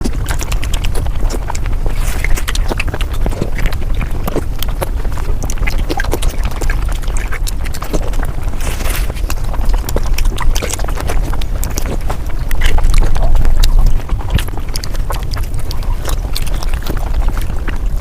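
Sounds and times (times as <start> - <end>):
fast crunching and smacking: 0.0 - 18.0
steady low rumble: 0.0 - 18.0.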